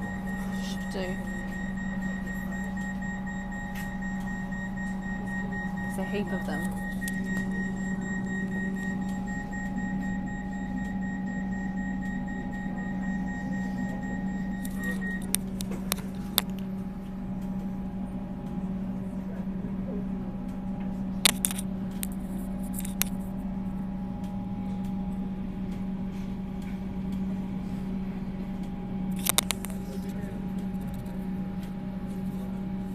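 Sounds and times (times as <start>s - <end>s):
high whine: 0.0s - 23.2s
train carriage electric hum: 0.0s - 32.9s
sharp clicks and knocks: 29.1s - 29.8s.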